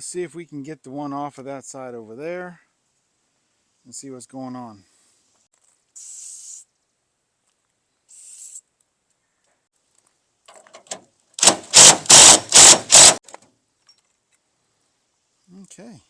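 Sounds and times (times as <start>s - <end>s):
power tool bursts: 11.4s - 13.2s.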